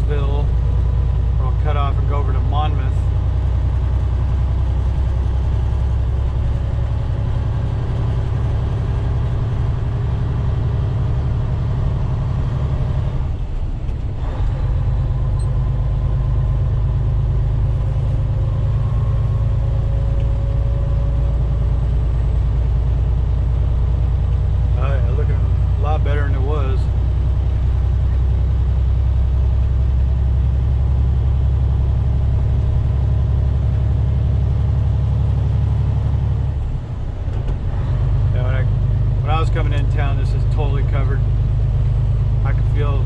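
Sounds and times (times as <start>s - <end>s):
truck diesel engine hum from cab: 0.0s - 43.0s.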